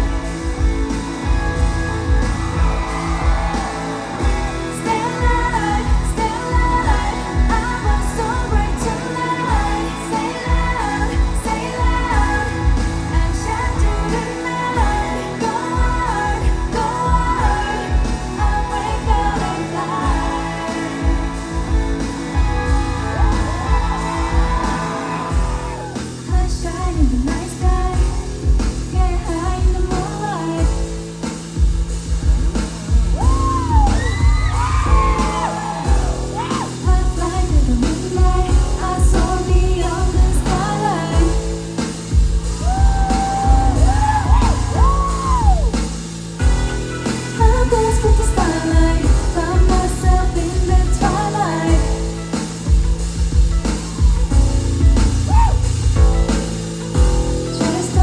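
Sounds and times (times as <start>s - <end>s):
crowd yelling: 0.0s - 7.8s, 17.5s - 26.2s, 33.2s - 36.9s, 42.5s - 46.0s
woman singing: 0.0s - 31.3s, 33.2s - 53.4s, 57.4s - 58.0s
heavy bass-drum beat: 0.0s - 58.0s.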